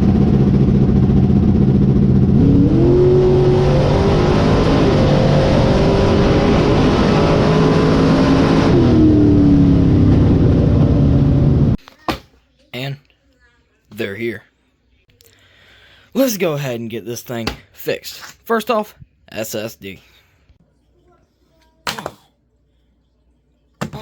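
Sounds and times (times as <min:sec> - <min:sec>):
loud engine-like drone: 0:00.0 - 0:11.8.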